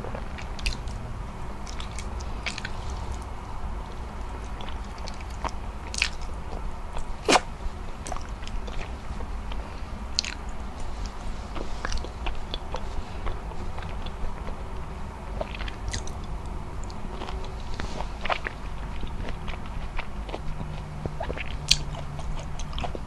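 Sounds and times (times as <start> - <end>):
chewing rice: 0.0 - 23.0
lip smacks: 1.6 - 3.3.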